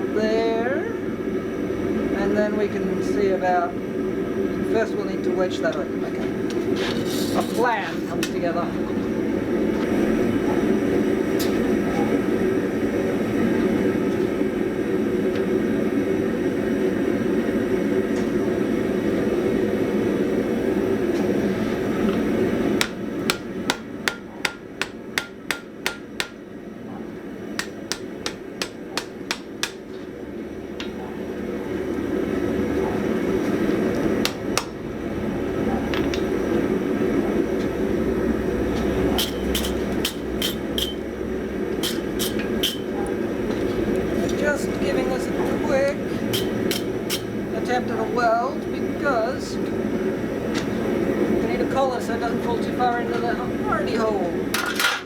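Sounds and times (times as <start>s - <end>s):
hammer striking steel on anvil: 22.8s - 26.4s, 27.6s - 29.8s, 39.2s - 41.0s, 41.8s - 42.9s, 46.3s - 47.3s.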